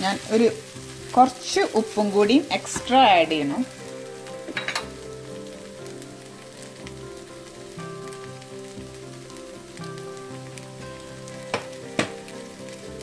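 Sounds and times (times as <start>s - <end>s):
rice sizzling in a pan: 0.0s - 13.0s
soft background music: 0.0s - 13.0s.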